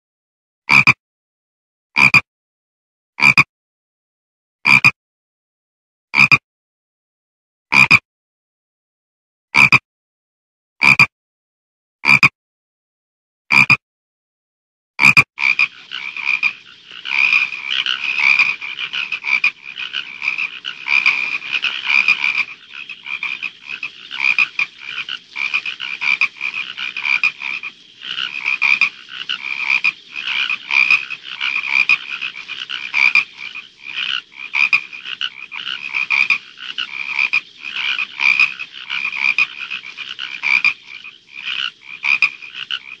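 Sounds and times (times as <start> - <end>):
frogs croaking: 3.2 - 3.4, 15.0 - 43.0.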